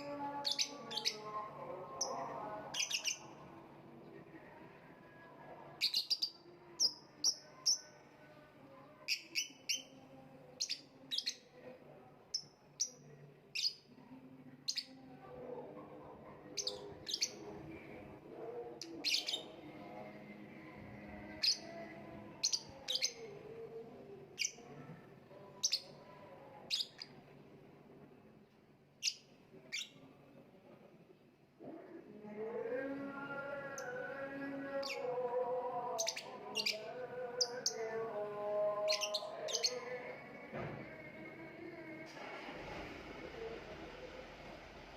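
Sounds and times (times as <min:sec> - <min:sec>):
lovebird chirping: 0:02.0 - 0:03.3, 0:38.8 - 0:40.0.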